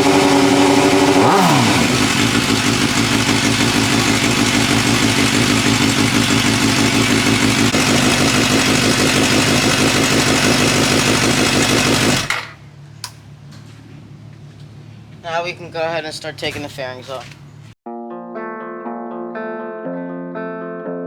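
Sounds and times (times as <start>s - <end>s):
motorcycle engine idling: 0.0s - 12.6s.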